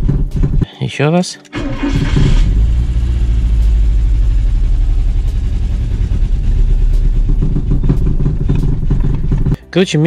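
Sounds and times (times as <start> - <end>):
car engine idling roughly: 2.0 - 9.6.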